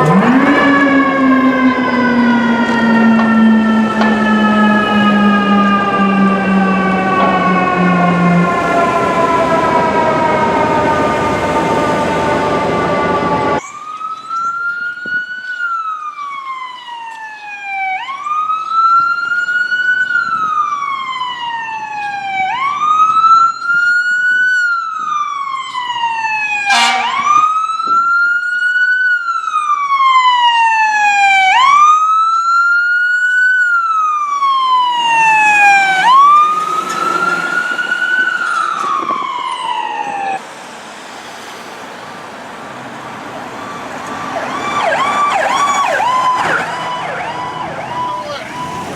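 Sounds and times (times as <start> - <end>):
fire siren wailing: 0.0 - 48.9
road noise: 0.0 - 48.9
short horn blast: 26.7 - 27.4.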